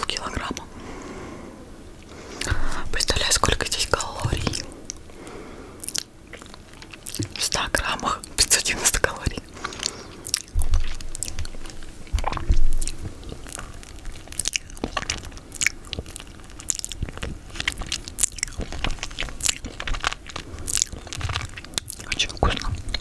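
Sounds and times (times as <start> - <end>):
mouth eating sticky food: 0.0 - 23.0.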